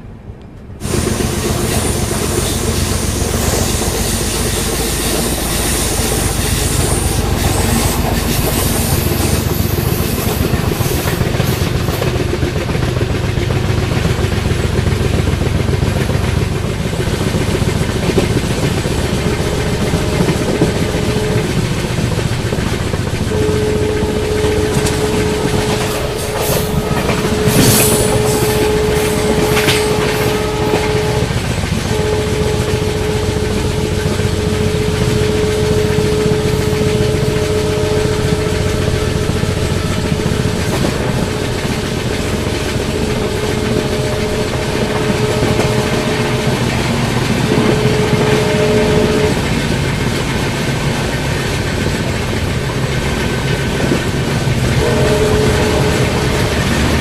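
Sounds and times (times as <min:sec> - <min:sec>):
train wheels rumbling on rail: 0:00.0 - 0:57.0
steady mid-pitched tone: 0:14.3 - 0:51.0.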